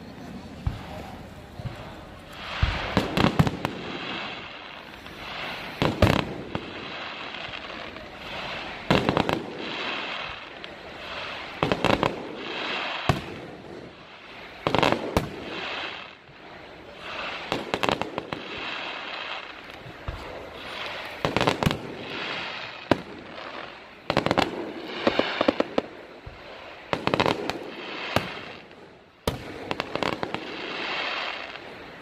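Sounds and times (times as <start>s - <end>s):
firework hissing and crackling: 0.0s - 32.0s
firework bangs: 0.1s - 32.0s.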